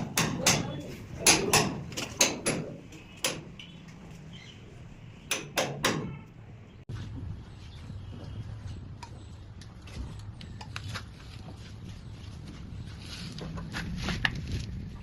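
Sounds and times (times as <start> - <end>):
sharp knocks on pipes: 0.0 - 3.7, 5.3 - 6.3.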